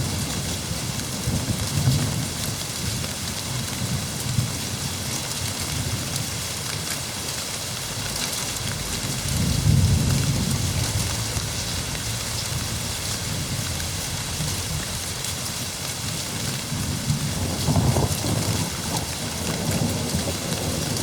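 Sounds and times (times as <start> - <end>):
heavy rain pouring: 0.0 - 21.0
rolling thunder: 8.0 - 15.2, 16.6 - 21.0.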